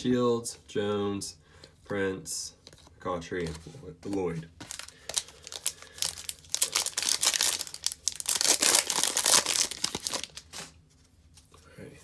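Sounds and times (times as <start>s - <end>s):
plastic wrapper tearing and crinkling: 4.6s - 10.7s.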